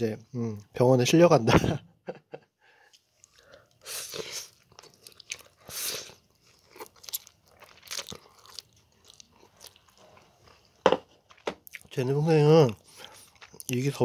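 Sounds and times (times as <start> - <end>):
person chewing noodles: 2.8 - 14.0.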